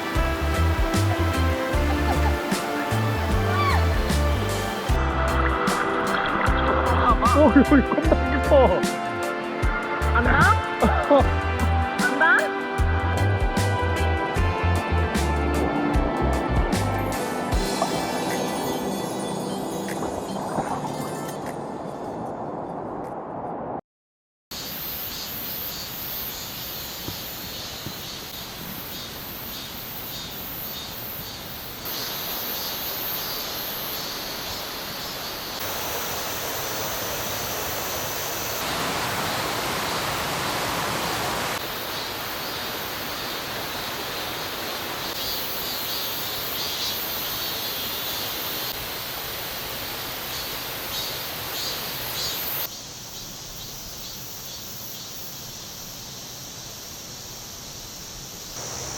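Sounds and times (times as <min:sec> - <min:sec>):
stream water rushing: 0:00.0 - 0:21.9, 0:31.9 - 0:52.7
insects chirring: 0:24.5 - 0:58.9.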